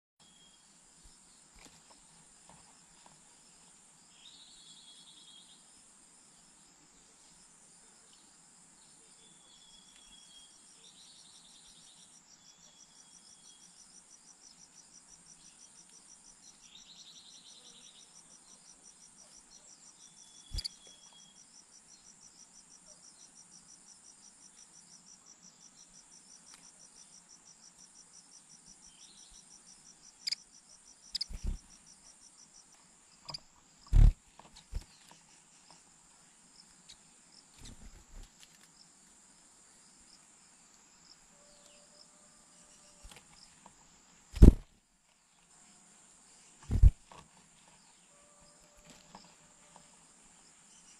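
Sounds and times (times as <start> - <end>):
insects chirring: 9.4 - 45.3, 46.2 - 50.9.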